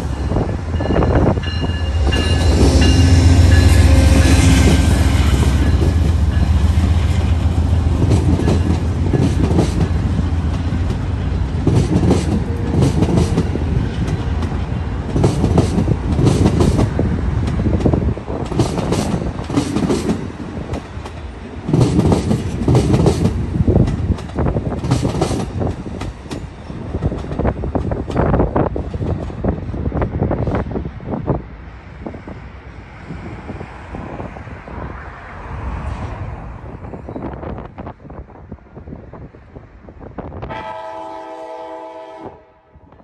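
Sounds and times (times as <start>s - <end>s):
train wheels clacking over rail joints: 7.2s - 29.5s.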